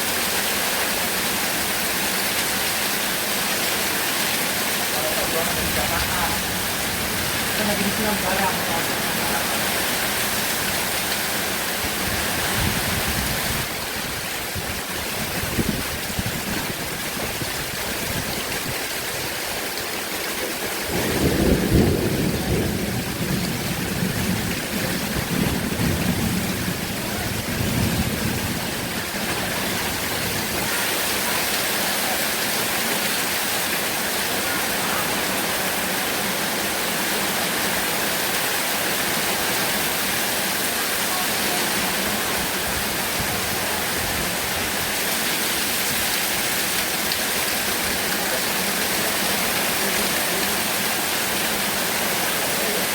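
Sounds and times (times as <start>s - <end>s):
heavy rain falling: 0.0s - 52.9s
thunder rumbling: 20.9s - 30.7s.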